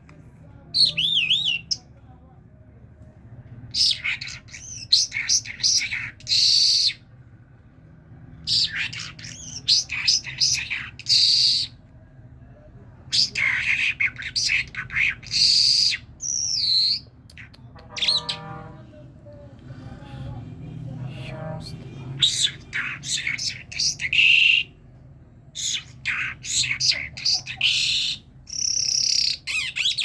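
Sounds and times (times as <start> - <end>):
myna chattering and whistling: 0.7 - 1.8, 3.7 - 7.0, 13.1 - 19.0, 19.7 - 24.8, 25.5 - 30.0.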